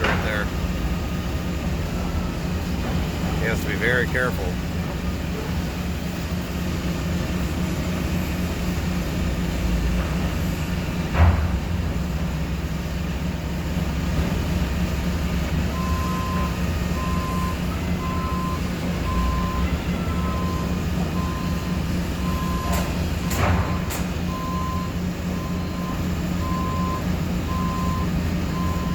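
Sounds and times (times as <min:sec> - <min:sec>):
forklift engine running: 0:00.0 - 0:28.9
reversing alarm beeping: 0:15.7 - 0:28.9.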